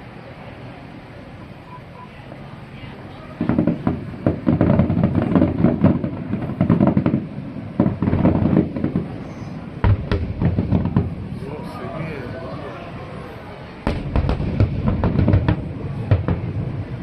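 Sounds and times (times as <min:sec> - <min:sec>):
fireworks crackling bangs: 0:03.3 - 0:12.1, 0:13.8 - 0:17.0
heavy low firework boom: 0:09.8 - 0:11.5, 0:13.8 - 0:17.0.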